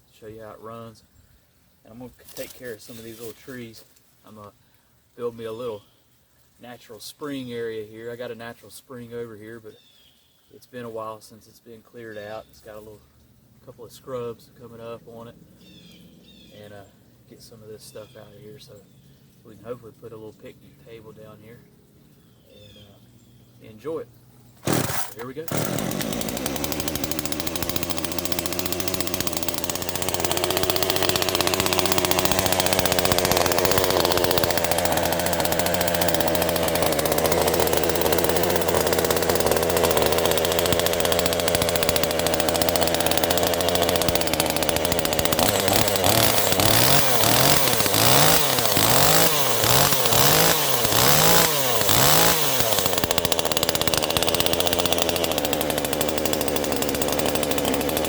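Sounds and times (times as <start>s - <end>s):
chainsaw revving and idling: 2.2s - 3.5s, 24.6s - 58.0s.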